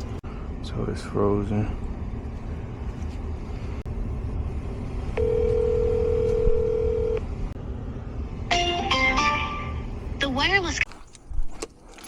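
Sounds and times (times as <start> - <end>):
steady low rumble: 0.0 - 8.5
telephone ringback tone: 5.2 - 7.2.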